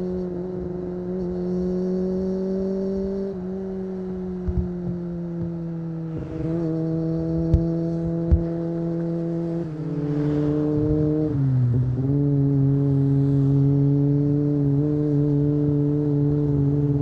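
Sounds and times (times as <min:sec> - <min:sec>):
motorcycle engine at high revs: 0:00.0 - 0:17.0.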